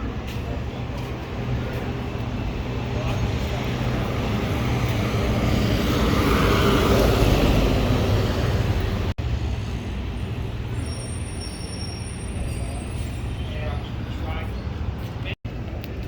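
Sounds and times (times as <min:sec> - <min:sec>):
steady traffic noise: 0:00.0 - 0:16.0
large vehicle passing: 0:03.2 - 0:09.1.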